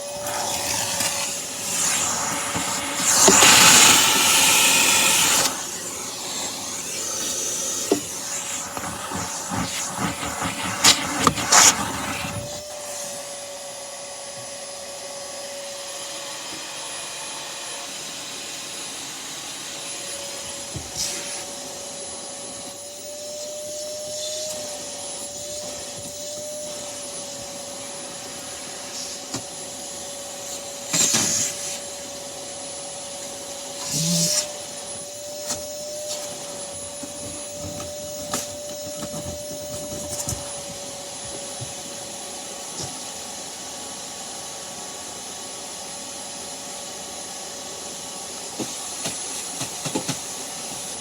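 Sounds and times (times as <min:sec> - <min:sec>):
vacuum cleaner running: 0:00.0 - 0:51.0
rubbing and clunking: 0:35.6 - 0:41.8.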